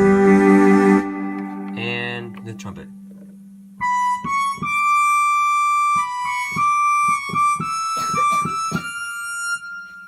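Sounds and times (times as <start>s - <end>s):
synthesizer trumpet melody: 0.0s - 1.8s.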